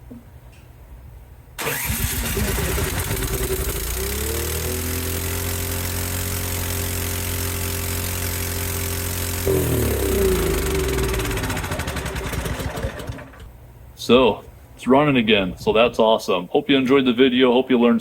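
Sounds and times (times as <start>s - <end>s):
snowblower engine running: 1.6s - 13.5s.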